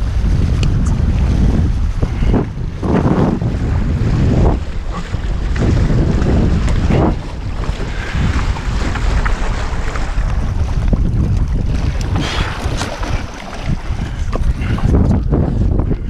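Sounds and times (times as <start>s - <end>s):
water splashing along hulls: 0.0s - 16.0s
wind buffeting microphone: 0.0s - 16.0s.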